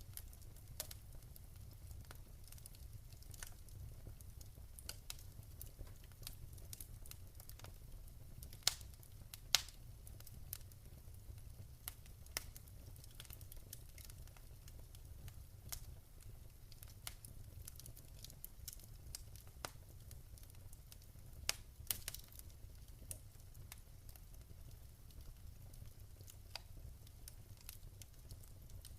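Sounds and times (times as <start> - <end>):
wood fire crackling: 0.0 - 28.9.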